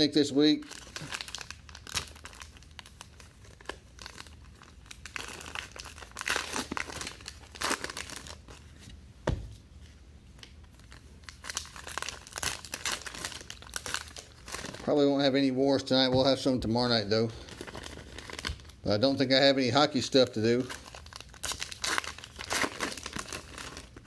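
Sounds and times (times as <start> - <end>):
wrapper ripping: 0.6 - 8.6, 10.4 - 15.0, 16.8 - 18.9, 20.0 - 24.0
card pack wrappers crinkling: 0.6 - 8.7, 10.4 - 19.4, 20.0 - 24.0.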